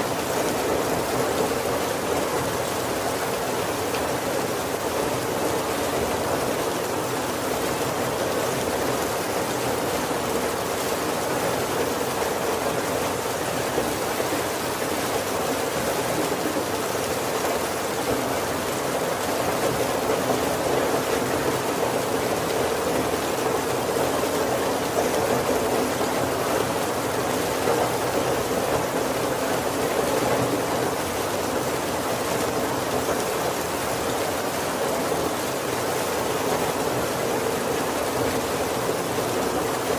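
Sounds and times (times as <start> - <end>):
heavy rain on a wooden roof: 0.0 - 39.9.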